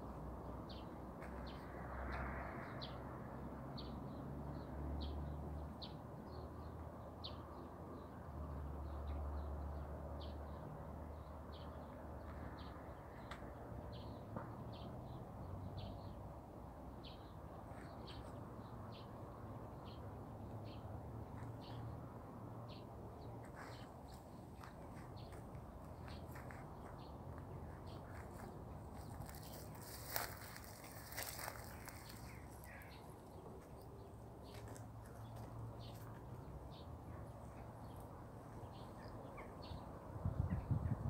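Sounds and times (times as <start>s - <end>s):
small birds chirping: 22.7s - 41.0s.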